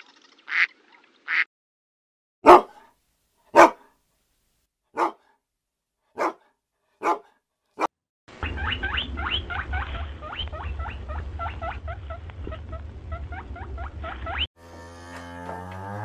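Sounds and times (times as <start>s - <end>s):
dog barking: 2.4s - 2.9s, 3.5s - 4.0s, 4.9s - 5.4s, 6.1s - 8.0s
low rumble: 8.5s - 14.5s.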